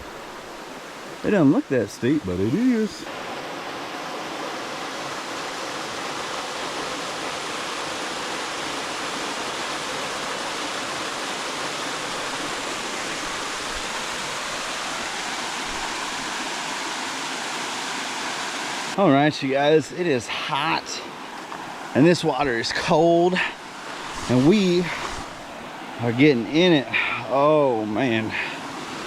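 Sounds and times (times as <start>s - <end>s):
small waterfall rushing: 0.0s - 29.0s.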